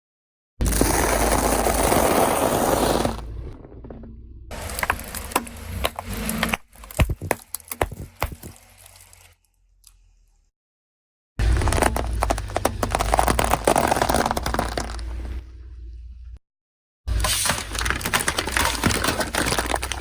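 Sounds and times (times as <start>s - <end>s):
brittle objects cracking and crunching: 4.5s - 9.3s, 11.4s - 15.2s, 17.4s - 20.0s.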